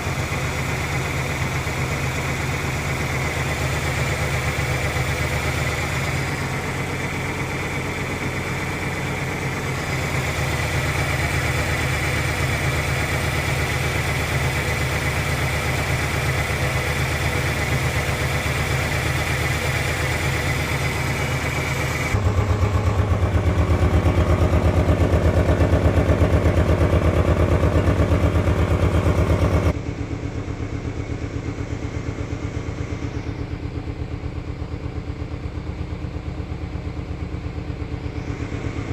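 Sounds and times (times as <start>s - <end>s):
engine idling roughly: 0.0s - 38.9s.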